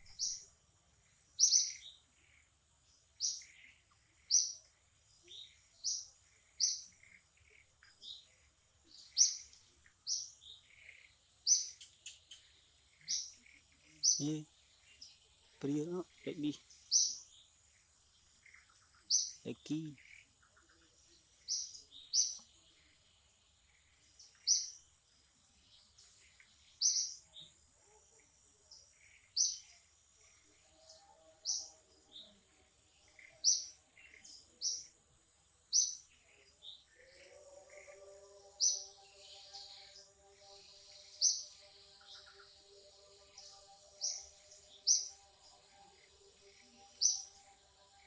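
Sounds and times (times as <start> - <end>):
bird chirping: 0.0 - 48.0
faint high-pitched hum: 0.0 - 48.0.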